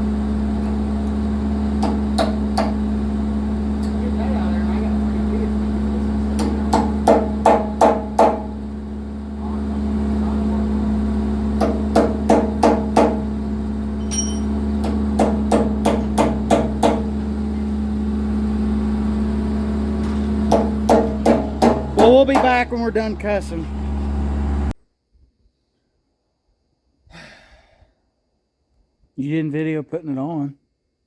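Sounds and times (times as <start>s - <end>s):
steady low hum: 0.0s - 24.8s.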